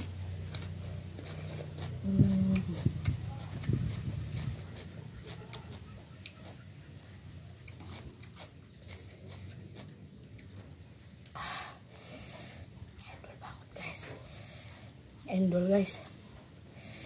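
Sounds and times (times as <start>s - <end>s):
person chewing food: 0.0s - 11.4s.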